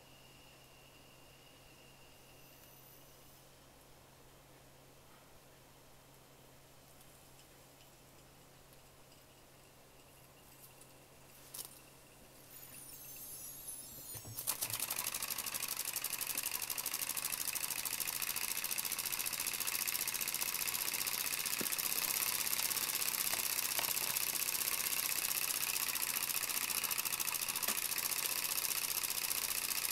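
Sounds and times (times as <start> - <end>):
model steam engine chuffing: 14.6 - 29.9.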